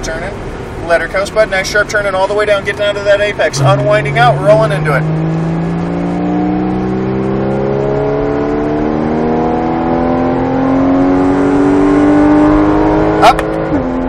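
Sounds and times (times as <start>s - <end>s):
car engine revving hard: 3.5s - 14.0s.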